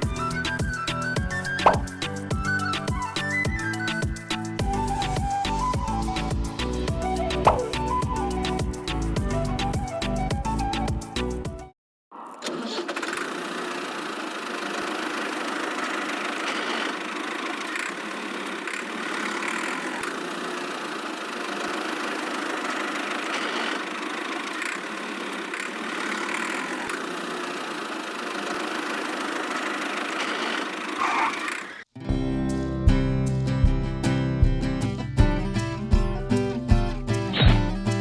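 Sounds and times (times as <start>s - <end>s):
strummed guitar music: 0.0s - 11.7s, 32.0s - 38.0s
small motor running: 12.8s - 31.9s.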